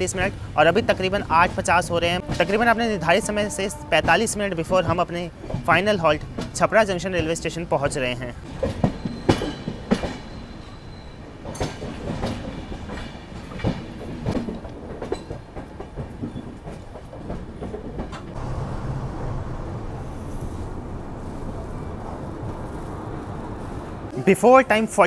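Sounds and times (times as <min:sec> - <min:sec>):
train rumble: 0:00.0 - 0:24.2
train wheels clacking over rail joints: 0:00.2 - 0:02.8, 0:04.0 - 0:07.6, 0:08.4 - 0:18.4.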